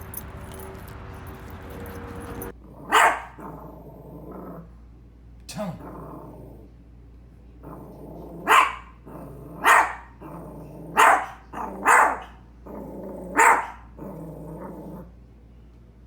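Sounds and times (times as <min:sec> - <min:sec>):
dog barking: 0:02.3 - 0:03.7, 0:08.4 - 0:14.8
dog growling low: 0:02.6 - 0:04.9, 0:05.5 - 0:06.8, 0:07.6 - 0:11.9, 0:12.6 - 0:15.2.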